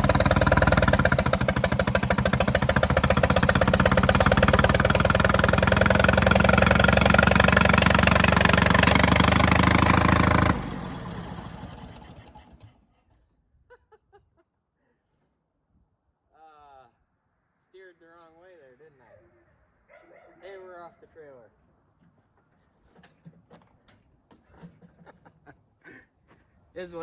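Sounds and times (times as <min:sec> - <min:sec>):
forklift engine running: 0:00.0 - 0:12.8.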